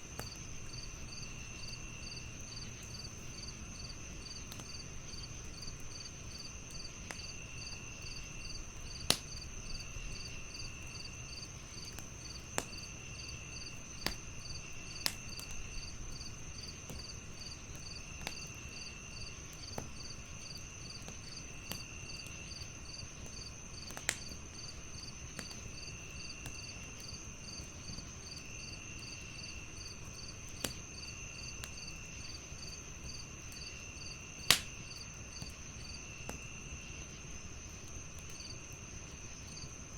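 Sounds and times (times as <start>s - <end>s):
crickets chirping: 0.0s - 39.9s
wood fire crackling: 0.0s - 39.9s
sharp pops from fire: 0.1s - 0.7s, 4.3s - 4.8s, 5.4s - 7.4s, 8.0s - 18.6s, 19.4s - 28.1s, 29.9s - 33.8s, 34.4s - 36.5s.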